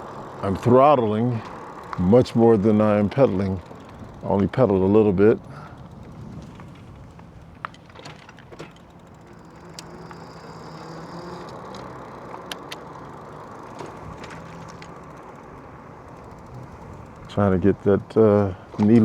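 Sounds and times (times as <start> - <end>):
wind and tyre noise: 0.0 - 19.0
thin motor whine: 8.7 - 18.2
sharp clicks: 11.4 - 14.0.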